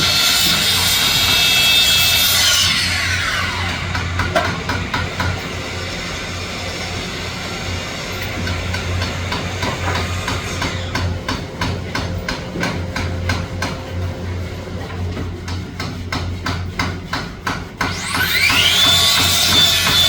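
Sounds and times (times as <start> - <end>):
rapid hammer strikes: 0.0 - 5.9, 8.2 - 20.0
power saw motor whining: 0.0 - 11.3, 17.9 - 20.0
steady low hum: 2.9 - 17.7.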